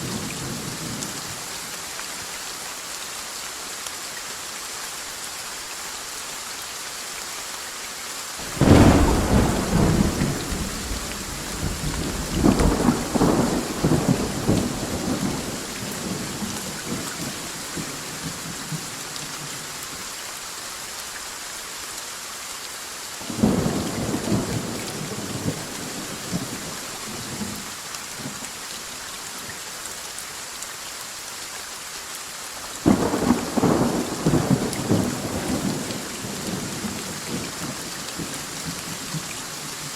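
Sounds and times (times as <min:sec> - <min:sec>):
steady rain: 0:00.0 - 0:39.9
thunder: 0:08.4 - 0:17.0.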